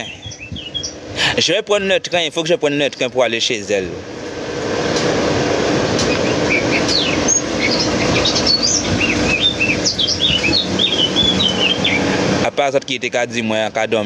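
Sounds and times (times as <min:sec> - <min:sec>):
small birds chirping: 0:00.0 - 0:01.1, 0:06.0 - 0:12.3
steady rushing noise: 0:00.0 - 0:14.0.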